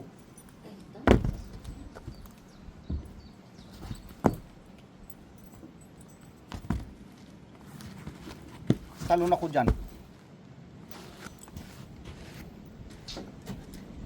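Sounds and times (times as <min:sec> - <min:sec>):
sharp footsteps: 0:01.1 - 0:04.8, 0:06.5 - 0:07.3, 0:07.9 - 0:10.1.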